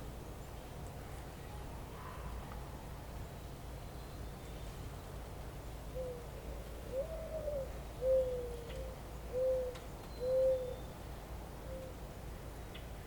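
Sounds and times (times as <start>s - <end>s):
bird cooing: 5.9s - 10.8s, 11.6s - 12.0s.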